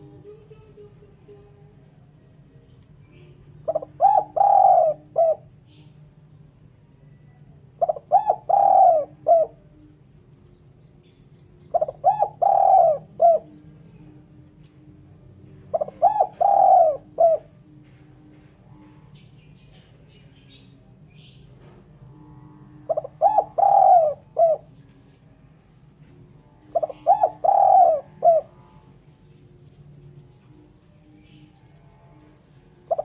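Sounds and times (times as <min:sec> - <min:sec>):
dove cooing: 0:03.1 - 0:05.9, 0:07.3 - 0:10.0, 0:11.6 - 0:14.8, 0:15.5 - 0:17.8, 0:22.4 - 0:33.0
small birds chirping: 0:26.7 - 0:33.0.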